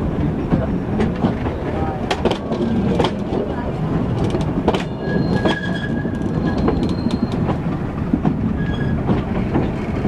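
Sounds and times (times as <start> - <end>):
train low rumble: 0.0 - 10.0
wheels clacking over rail joints: 0.1 - 10.0
wheels squealing on rails: 4.7 - 10.0.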